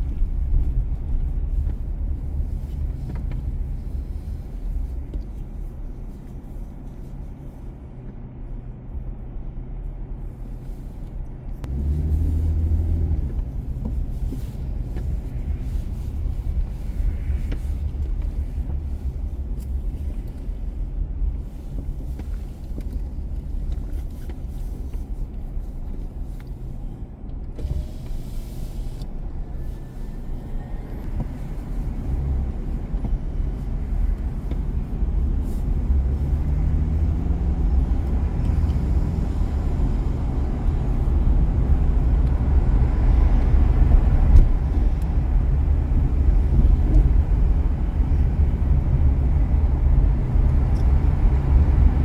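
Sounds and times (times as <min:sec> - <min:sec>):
car engine and road noise: 0:00.0 - 0:52.0.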